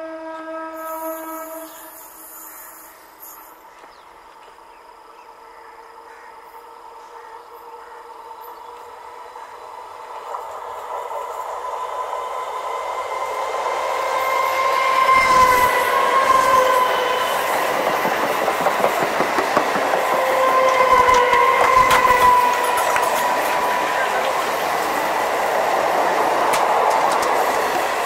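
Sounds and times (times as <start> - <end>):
electric train passing: 0.0 - 28.0
train wheels clattering over joints: 16.4 - 25.6, 26.2 - 28.0.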